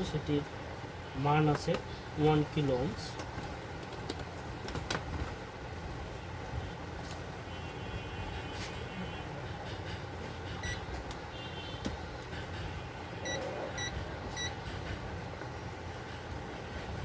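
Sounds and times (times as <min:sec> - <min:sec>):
steady background hum: 0:00.0 - 0:17.0
multimeter beeps: 0:10.6 - 0:10.9, 0:13.2 - 0:14.6.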